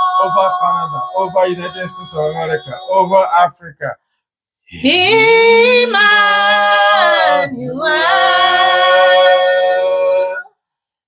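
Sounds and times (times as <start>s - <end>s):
woman singing unaccompanied: 4.8s - 10.6s.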